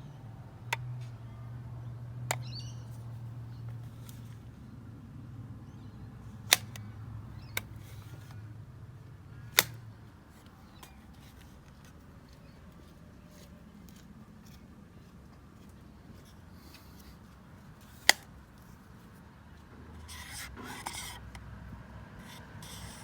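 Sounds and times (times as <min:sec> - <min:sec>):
sharp clicks: 0:09.6 - 0:09.8.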